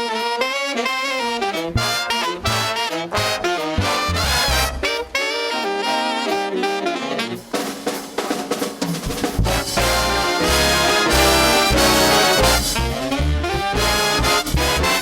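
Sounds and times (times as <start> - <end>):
horns playing jazz melody: 0.0 - 8.0, 9.0 - 15.0
bass and drums: 1.5 - 5.0, 7.4 - 15.0.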